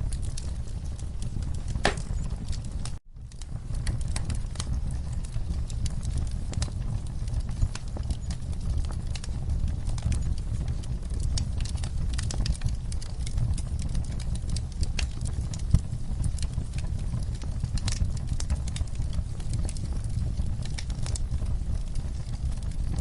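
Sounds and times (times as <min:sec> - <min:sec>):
campfire crackling and popping: 0:00.0 - 0:23.0
steady low rumble: 0:00.0 - 0:23.0.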